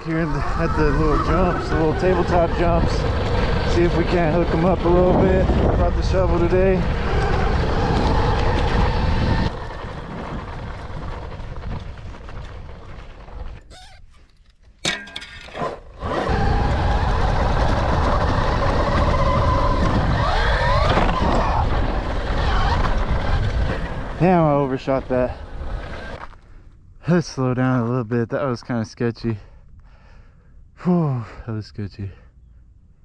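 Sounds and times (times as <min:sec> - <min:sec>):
electric motor whine: 0:00.0 - 0:10.0, 0:16.0 - 0:24.2
wind rushing over microphone: 0:00.0 - 0:13.0, 0:16.0 - 0:26.2
dirt bike landing clatter: 0:06.9 - 0:16.3.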